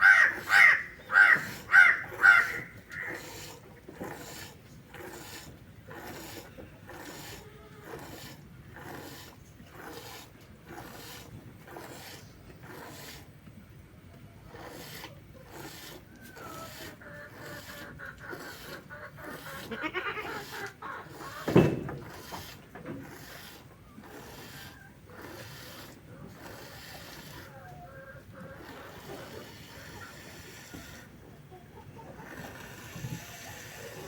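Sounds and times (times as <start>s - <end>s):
goat bleating: 19.2s - 21.2s.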